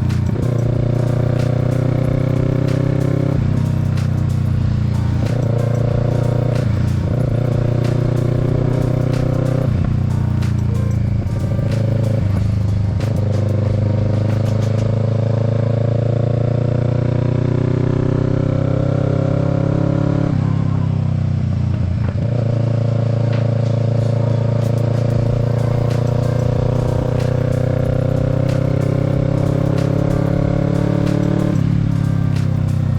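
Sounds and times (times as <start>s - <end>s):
motorcycle engine pulling: 0.0s - 20.3s.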